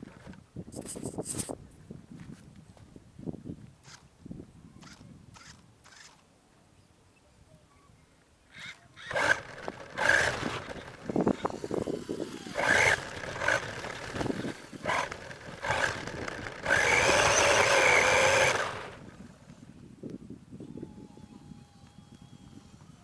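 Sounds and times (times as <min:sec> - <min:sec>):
toy truck motor whining: 0:08.6 - 0:19.6, 0:20.7 - 0:23.0
tyres scraping on ground: 0:09.0 - 0:19.2.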